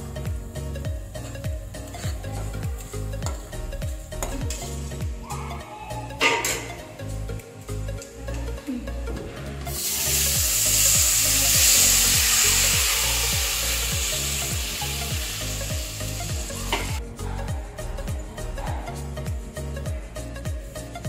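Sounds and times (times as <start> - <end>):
liquid sizzling in hot oil: 9.7 - 17.0.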